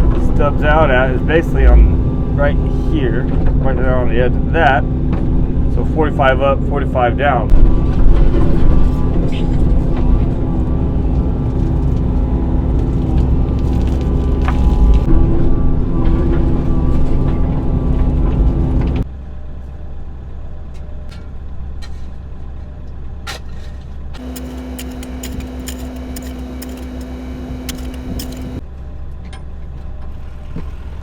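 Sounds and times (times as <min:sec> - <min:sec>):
diesel engine running: 0:00.0 - 0:19.0, 0:24.2 - 0:28.6
steady hum: 0:00.0 - 0:19.0, 0:24.2 - 0:28.6.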